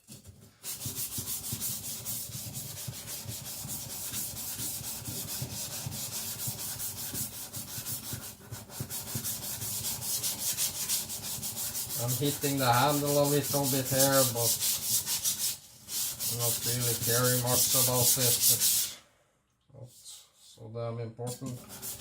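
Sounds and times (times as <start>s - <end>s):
blade scraping on whetstone: 10.0s - 18.9s.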